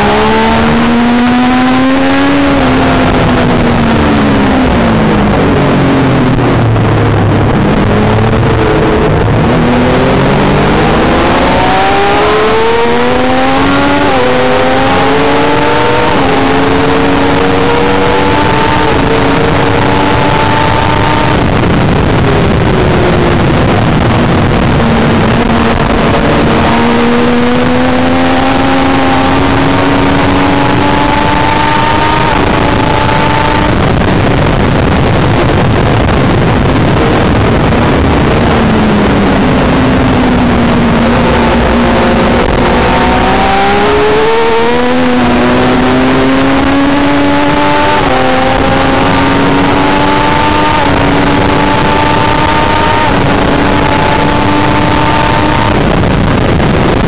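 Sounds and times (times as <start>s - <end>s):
motorcycle engine accelerating: 0.0s - 57.0s
wind noise: 0.0s - 57.0s.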